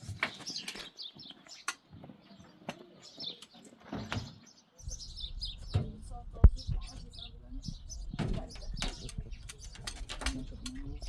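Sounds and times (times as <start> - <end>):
small birds chirping: 0.0 - 11.0
sharp clicks: 8.2 - 10.9.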